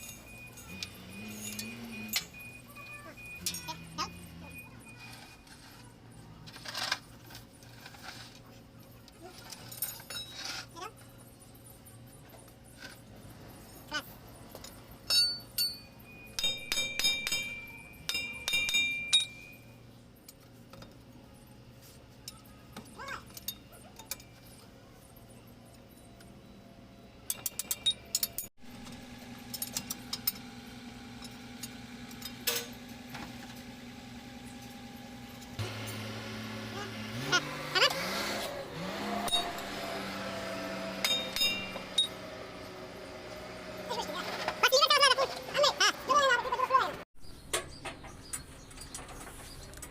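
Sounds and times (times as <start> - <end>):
metal tools clinking: 0.0 - 21.1, 21.8 - 26.6, 27.2 - 33.8, 39.2 - 42.3.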